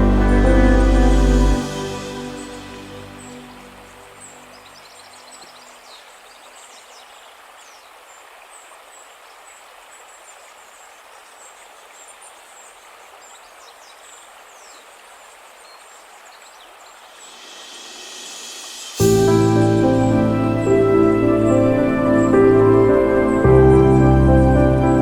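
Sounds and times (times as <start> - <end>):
running water rushing: 0.0 - 25.0
small birds chirping: 2.2 - 19.0.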